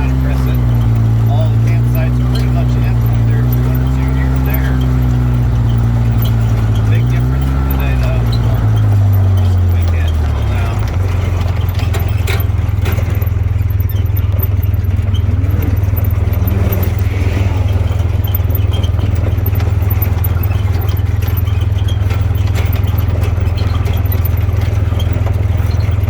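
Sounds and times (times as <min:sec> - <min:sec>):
utility vehicle engine droning: 0:00.0 - 0:26.0
vehicle rattles and clicks: 0:00.0 - 0:26.0.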